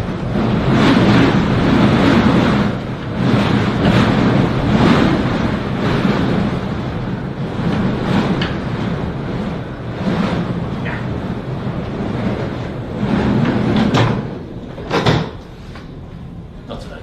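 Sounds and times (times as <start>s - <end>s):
blizzard wind gusting: 0.0s - 17.0s
sharp knocks: 13.4s - 15.4s.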